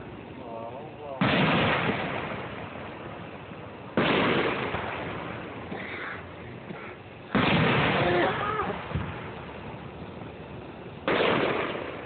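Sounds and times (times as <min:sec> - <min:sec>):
fireworks shell bursting: 0:01.2 - 0:03.2, 0:03.9 - 0:05.8, 0:06.7 - 0:12.0.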